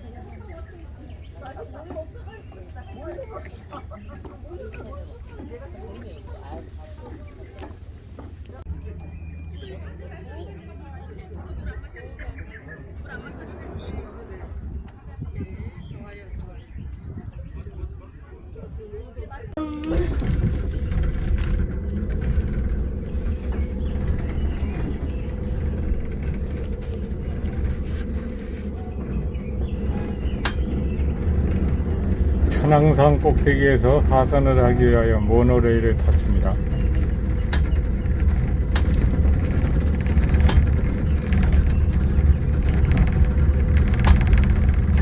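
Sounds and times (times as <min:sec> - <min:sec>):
monorail car rumbling on rail: 0:00.0 - 0:16.1, 0:19.5 - 0:45.0
motor hum: 0:19.6 - 0:45.0.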